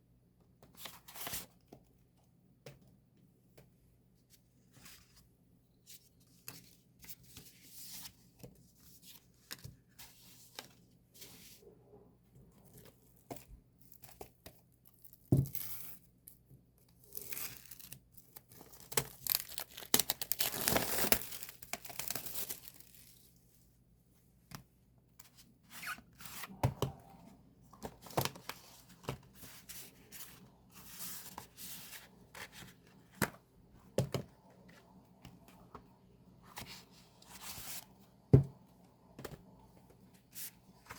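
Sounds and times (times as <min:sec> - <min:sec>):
packaging crinkling: 0:18.6 - 0:23.0
packaging tearing: 0:18.6 - 0:23.0.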